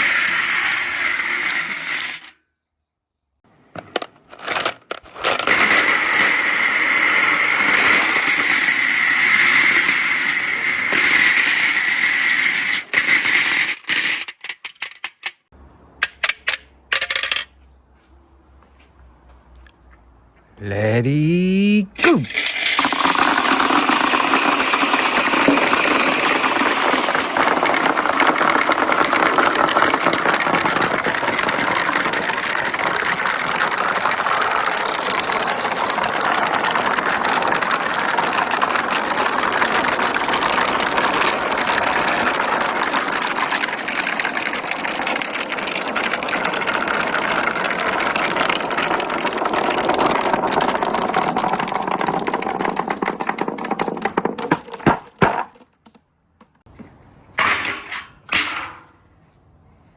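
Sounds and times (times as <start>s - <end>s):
marbles rolling down track: 0.0s - 2.4s, 3.8s - 15.0s, 16.9s - 17.4s, 22.0s - 56.5s.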